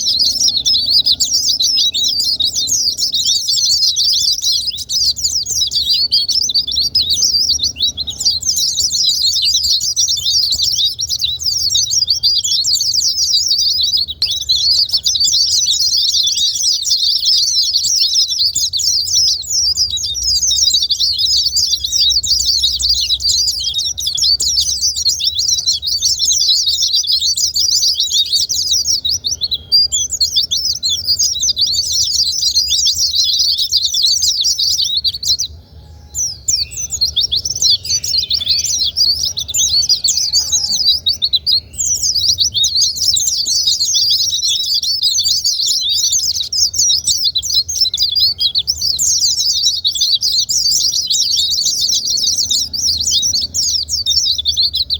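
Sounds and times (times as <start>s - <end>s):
birds twittering high-pitched: 0.0s - 54.9s.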